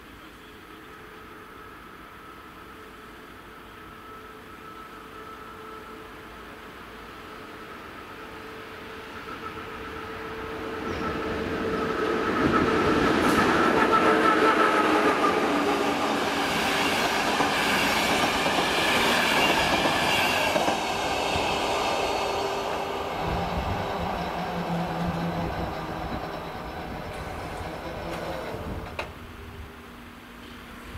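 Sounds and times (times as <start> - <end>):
passenger train passing: 0.0 - 30.9
train wheels clattering on rails: 10.8 - 29.2.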